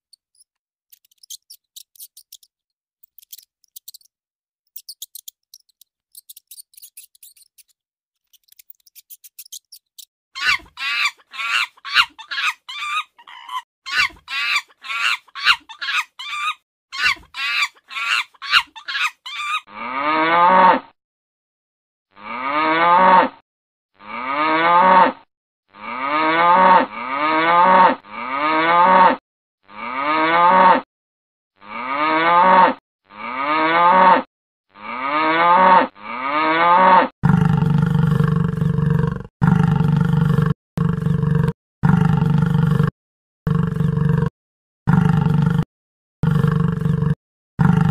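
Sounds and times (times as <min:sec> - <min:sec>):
high mouse squeaks: 0:00.0 - 0:04.1, 0:04.7 - 0:19.6.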